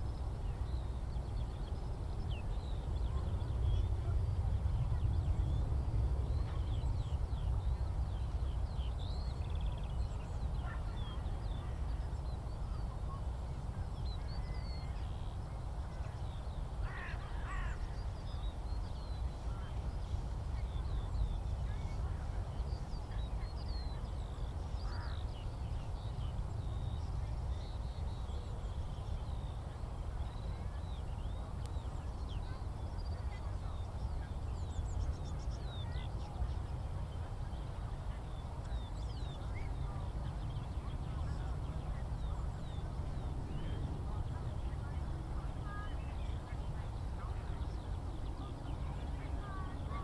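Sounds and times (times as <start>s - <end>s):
skylarks singing: 0.0s - 50.0s.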